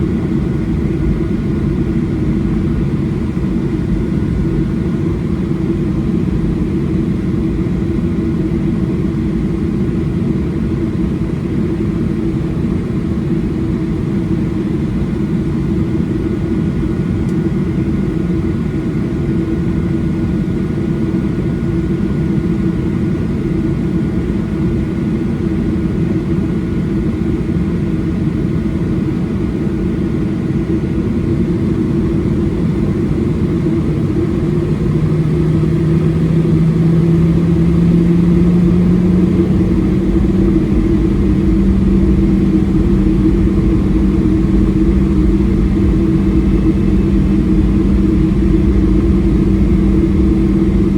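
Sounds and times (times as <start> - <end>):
jet engine cabin roar: 0.0 - 50.9
faint steady hum: 29.5 - 50.9.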